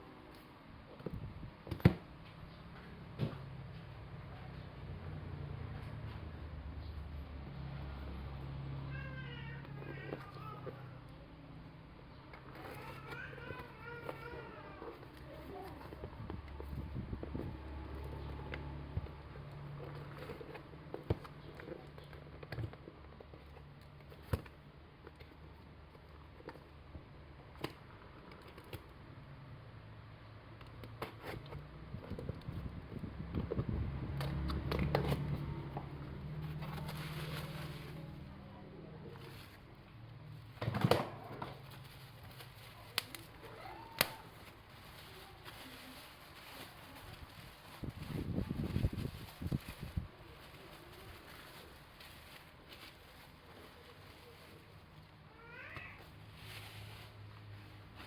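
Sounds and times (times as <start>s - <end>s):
crackling rustle of packaging: 3.5s - 58.0s
hands handling packaging clicks: 40.9s - 54.5s.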